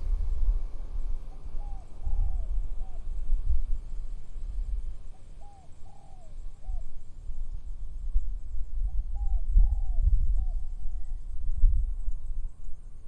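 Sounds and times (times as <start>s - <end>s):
wind buffeting microphone: 0.0s - 5.0s, 8.0s - 12.3s
bird cooing call: 1.3s - 3.1s, 5.3s - 6.9s, 8.9s - 11.2s.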